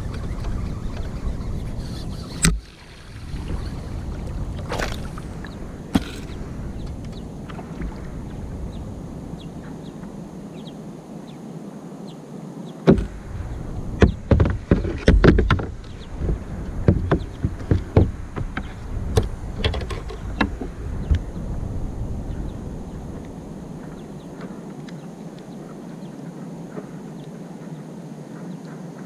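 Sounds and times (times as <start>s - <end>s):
knocks and clicks in kayak: 0.0s - 2.7s, 3.3s - 8.1s, 12.8s - 13.2s, 13.8s - 21.3s
wind rumble on microphone: 0.0s - 29.0s.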